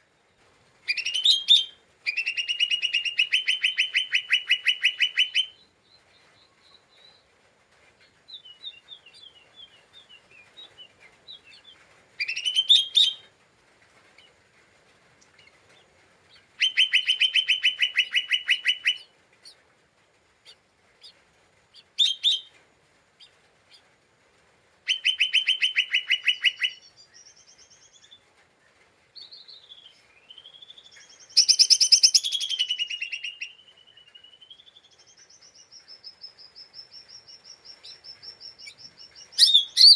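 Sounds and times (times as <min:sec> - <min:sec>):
bird singing and chattering: 0:08.4 - 0:13.2, 0:16.4 - 0:19.0, 0:24.9 - 0:28.2, 0:29.2 - 0:39.9.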